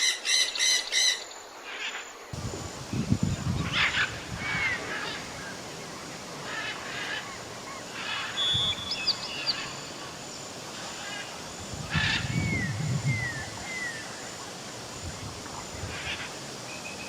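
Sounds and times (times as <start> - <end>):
outdoor background hiss: 0.0 - 17.0
waterfowl honking: 3.7 - 9.8
small bird chirping: 6.6 - 10.4.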